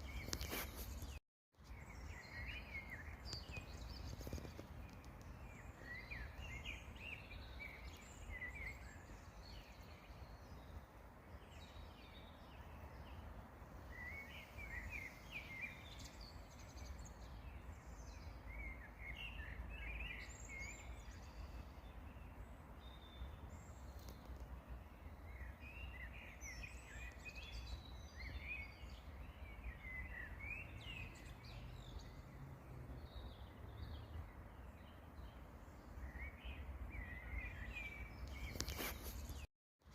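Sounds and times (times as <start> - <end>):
songbirds twittering: 0.0 - 39.9.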